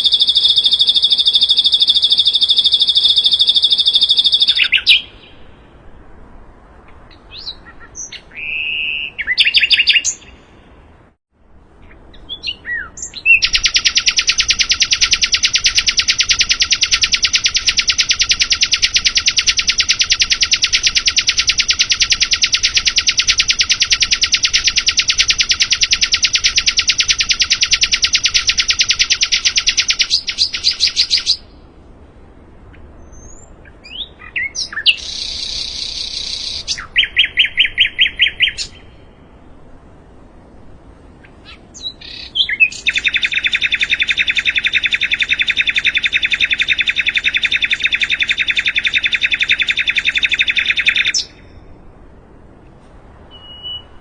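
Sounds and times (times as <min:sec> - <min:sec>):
rapid high bird trill: 0:00.0 - 0:05.8, 0:11.9 - 0:31.6, 0:33.0 - 0:39.2, 0:41.2 - 0:51.7
bird chirps: 0:00.0 - 0:05.9, 0:06.8 - 0:10.9, 0:11.8 - 0:31.6, 0:32.7 - 0:39.5, 0:41.2 - 0:51.8, 0:53.3 - 0:54.0.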